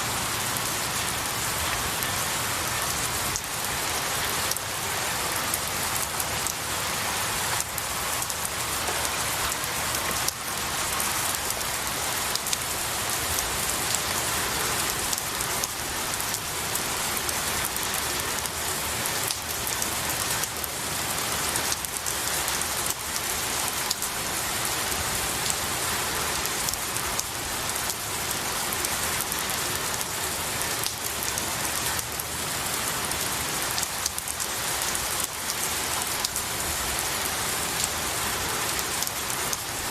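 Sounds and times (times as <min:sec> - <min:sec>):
rain falling on trees: 0:00.0 - 0:39.9.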